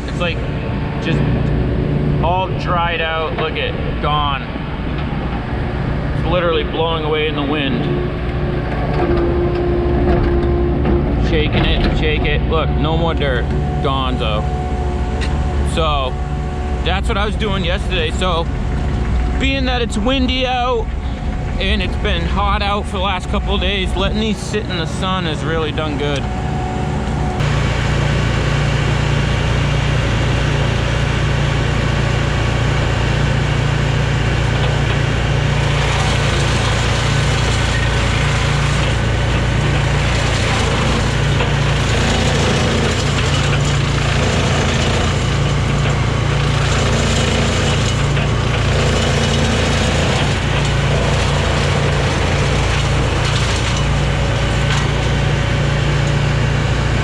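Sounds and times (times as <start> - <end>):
woodchipper running: 0.0 - 57.0
wood crunching and cracking: 34.6 - 56.2.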